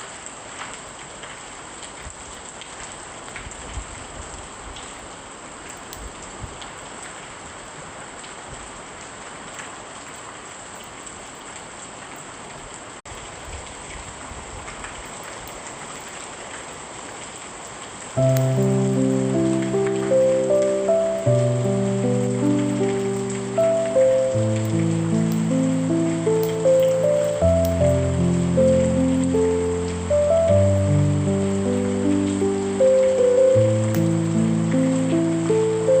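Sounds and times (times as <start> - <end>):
steady rain falling: 0.0 - 36.0
music with held notes: 18.2 - 36.0.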